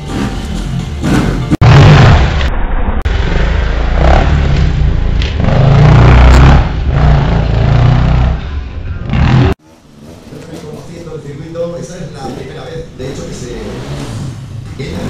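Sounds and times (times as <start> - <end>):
dirt bike engine revving: 3.1 - 9.6, 13.0 - 15.0.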